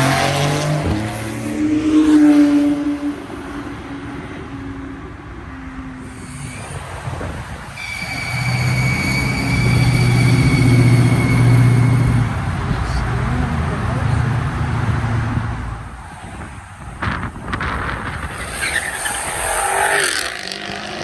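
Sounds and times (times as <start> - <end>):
car engine rumble: 0.0 - 21.0
thin high whine: 6.0 - 12.3.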